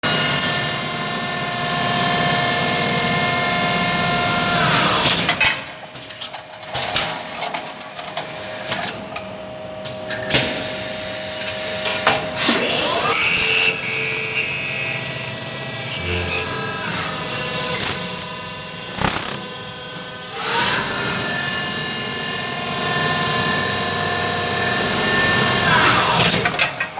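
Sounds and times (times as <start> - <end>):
machine spindle whine: 11.8 - 26.9.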